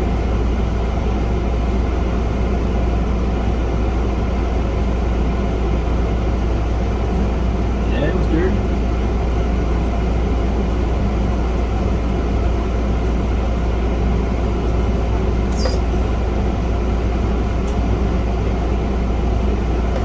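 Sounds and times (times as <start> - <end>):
machine hum and rumble: 0.0 - 20.0.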